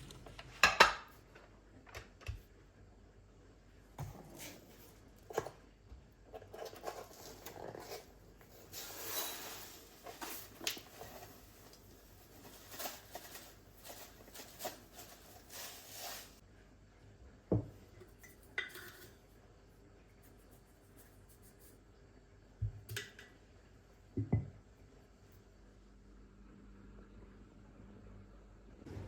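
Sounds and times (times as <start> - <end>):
rustling: 6.6 - 16.4.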